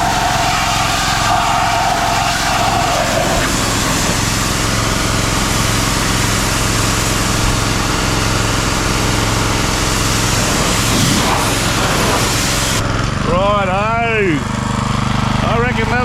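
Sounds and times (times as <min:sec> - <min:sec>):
spray hissing: 0:00.0 - 0:12.8
pressure washer engine running: 0:00.0 - 0:16.0.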